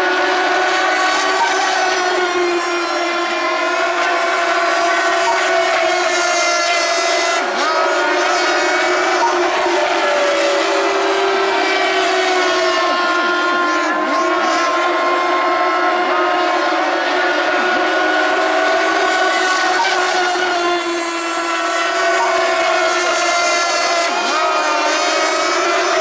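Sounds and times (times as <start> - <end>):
model boat engines running: 0.0 - 26.0.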